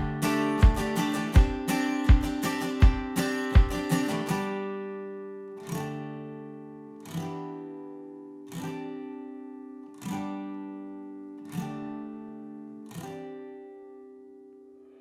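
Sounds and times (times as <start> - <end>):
acoustic guitar chords strummed: 0.0 - 15.0.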